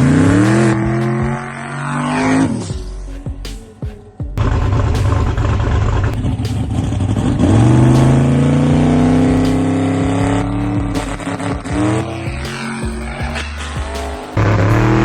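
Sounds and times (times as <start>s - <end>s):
race car engine roaring: 4.4s - 15.0s.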